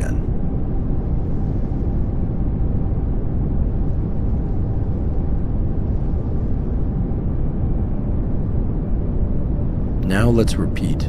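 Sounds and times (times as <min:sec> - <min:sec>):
pink noise hiss: 0:10.0 - 0:11.0.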